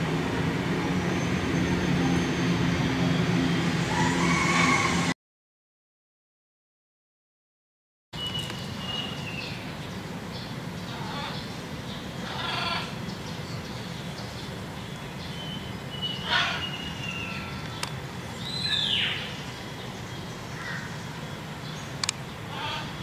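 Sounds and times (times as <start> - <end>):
bird calls: 8.2 - 23.0
sharp clicks: 22.0 - 22.2.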